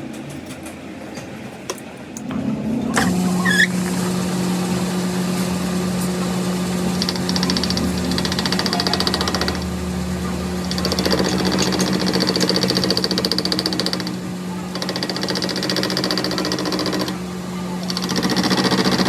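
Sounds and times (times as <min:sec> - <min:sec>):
machine motor humming: 0:02.2 - 0:19.0
motor squeal: 0:02.9 - 0:04.0.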